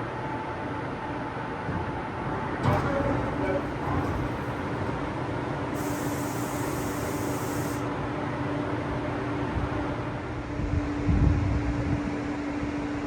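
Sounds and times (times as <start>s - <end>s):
electric train humming: 2.2s - 10.6s.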